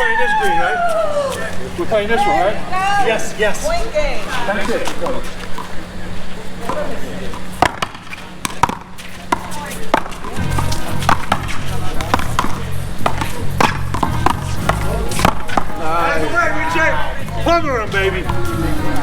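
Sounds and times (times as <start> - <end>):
background music: 10.4 - 19.0.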